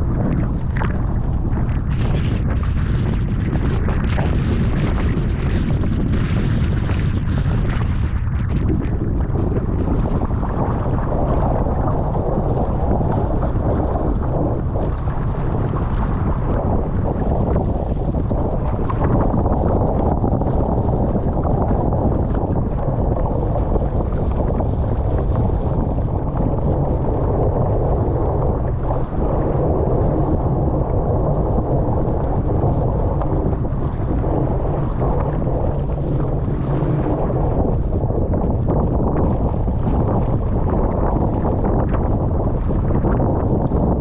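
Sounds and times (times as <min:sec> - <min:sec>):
wind buffeting microphone: 0:00.0 - 0:44.0
waves rushing: 0:21.2 - 0:43.2.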